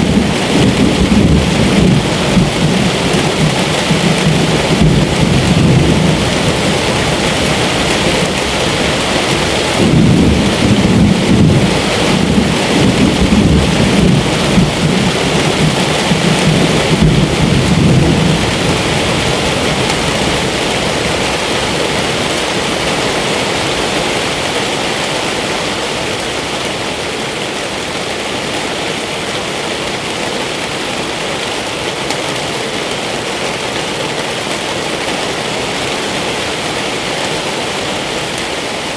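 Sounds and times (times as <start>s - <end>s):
rolling thunder: 0.0s - 23.0s
steady rain: 0.0s - 38.9s.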